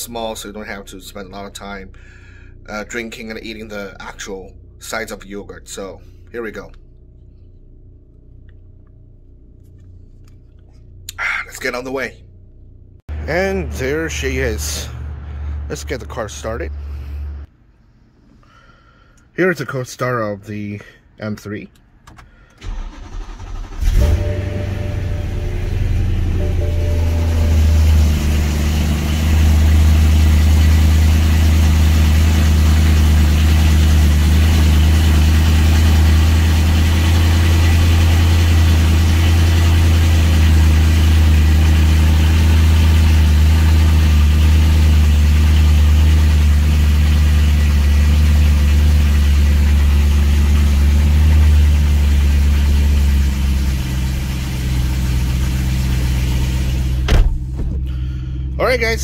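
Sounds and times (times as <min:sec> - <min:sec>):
car engine idling: 0:22.6 - 0:59.0.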